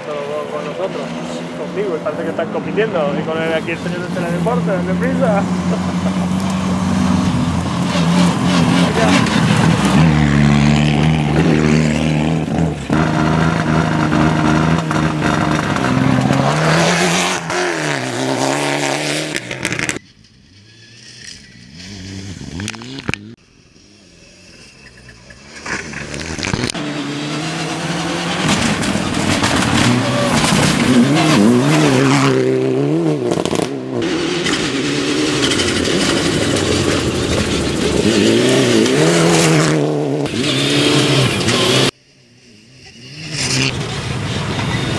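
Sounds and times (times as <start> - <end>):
rally car engines revving: 0.0 - 44.9.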